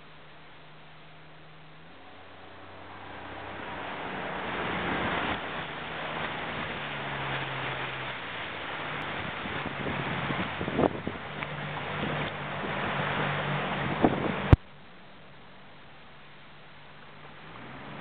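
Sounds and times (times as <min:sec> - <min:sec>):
faint low hum: 0:00.0 - 0:04.1
water washing along a boat: 0:00.0 - 0:18.0
wind rushing over microphone: 0:02.8 - 0:14.6.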